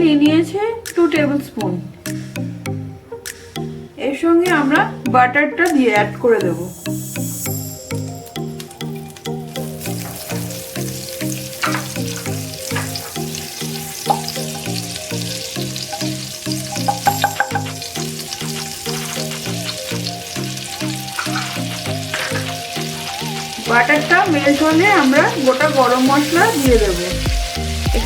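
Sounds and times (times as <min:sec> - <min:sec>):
butter sizzling in oil: 0:06.9 - 0:28.0.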